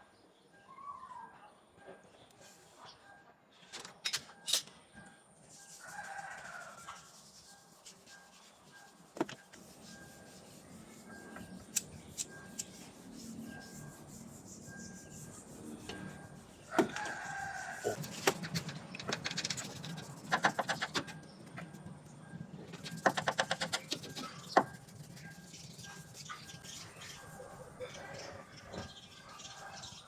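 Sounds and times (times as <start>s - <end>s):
rooster crowing: 5.8s - 7.0s, 16.7s - 18.2s
sharp clicks and knocks: 18.0s - 21.7s, 22.7s - 24.7s.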